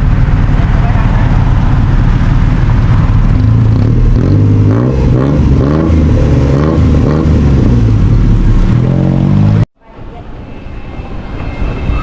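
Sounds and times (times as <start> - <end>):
vehicle engine running: 0.0 - 9.7
low rumble of road noise: 0.0 - 12.0.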